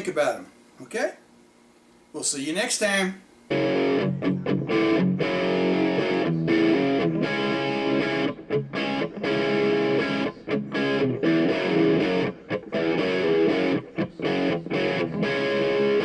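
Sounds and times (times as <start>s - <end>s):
distorted electric guitar chords: 3.5s - 16.0s.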